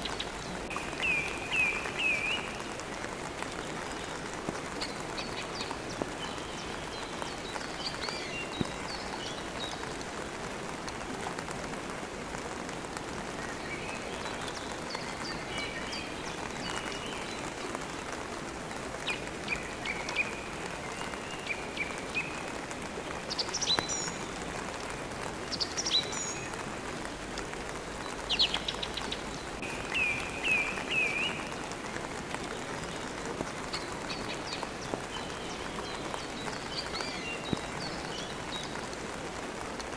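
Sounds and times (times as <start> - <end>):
steady rain: 0.0 - 39.9
birds chirping: 28.0 - 38.8.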